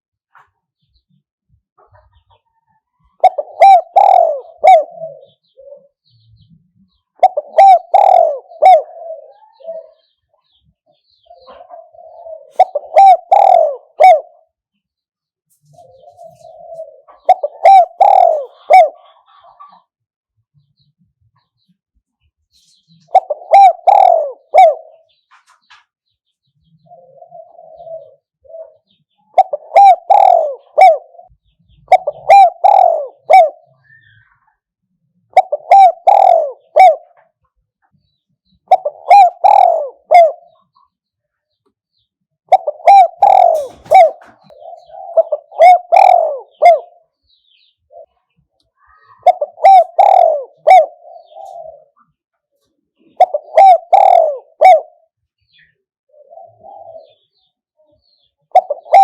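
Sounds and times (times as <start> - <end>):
dove cooing: 1.8 - 14.6, 15.6 - 19.9, 23.0 - 25.2, 26.7 - 34.5, 35.3 - 41.0, 42.5 - 59.0.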